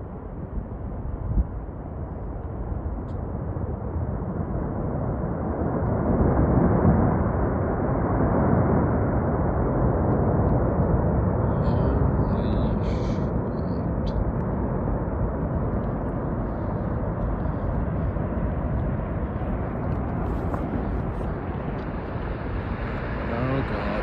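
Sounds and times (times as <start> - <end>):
avalanche rushing: 5.5 - 24.0.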